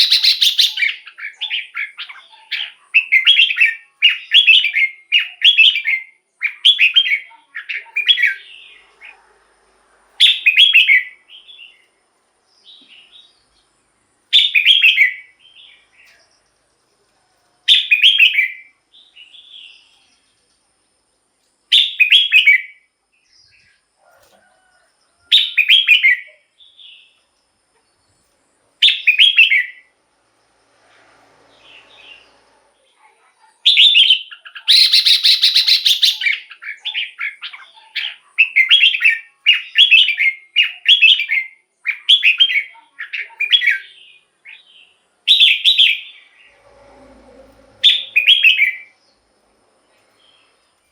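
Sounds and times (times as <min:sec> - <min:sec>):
bird singing whistled phrases: 0:00.0 - 0:08.5, 0:14.4 - 0:15.4, 0:17.7 - 0:18.7, 0:21.7 - 0:22.8, 0:28.8 - 0:29.8, 0:33.7 - 0:44.0, 0:47.8 - 0:48.9.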